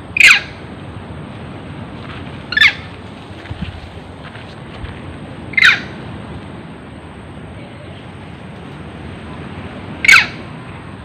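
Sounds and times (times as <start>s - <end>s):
steady background hiss: 0.0s - 11.0s
sharp animal call: 0.2s - 0.6s, 2.5s - 2.9s, 5.5s - 6.0s, 10.0s - 10.5s.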